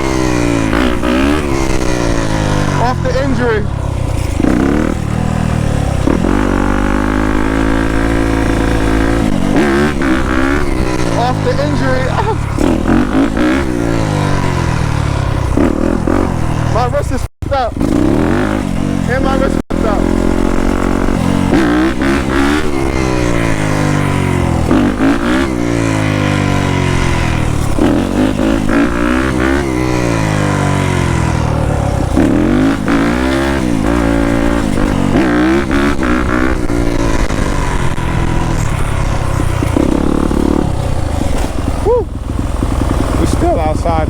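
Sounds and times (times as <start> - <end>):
dirt bike engine revving: 0.0 - 44.0.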